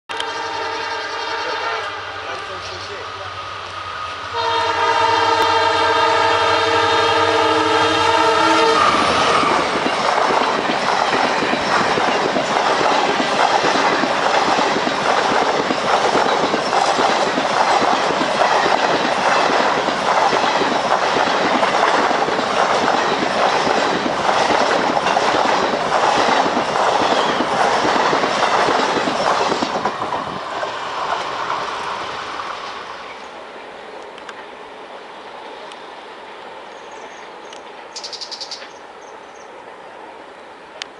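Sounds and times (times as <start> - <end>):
locomotive horn blast: 0.1 - 2.9, 4.3 - 9.5
train rumbling past: 0.1 - 40.9
wheels clacking over rail joints: 8.9 - 31.9.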